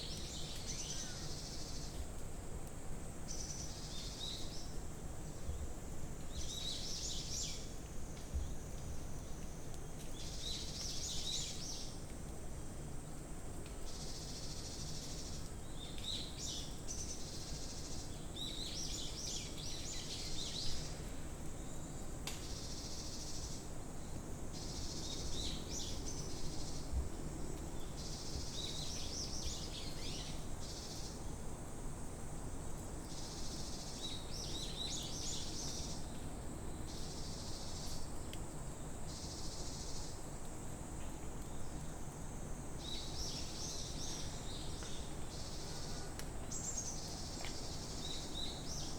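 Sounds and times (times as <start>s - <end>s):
insect chorus: 0.0s - 2.2s, 13.9s - 48.9s.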